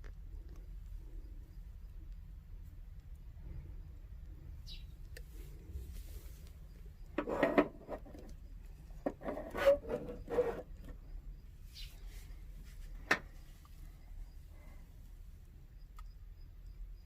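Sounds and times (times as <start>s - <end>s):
objects rubbing and knocking: 5.4s - 11.0s.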